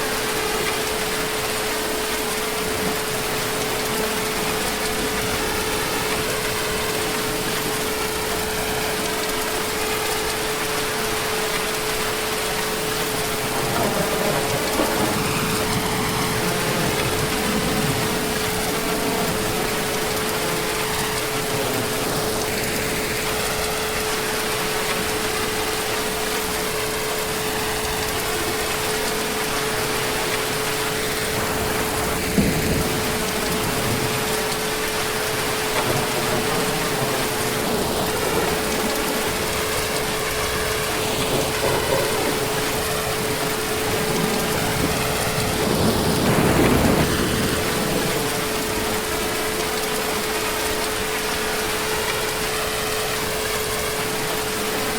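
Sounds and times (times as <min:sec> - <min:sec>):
heavy rain: 0:00.0 - 0:54.9
distant thunder rumble: 0:12.5 - 0:25.5, 0:27.5 - 0:50.2
thunder crack: 0:12.7 - 0:23.5, 0:31.0 - 0:49.5.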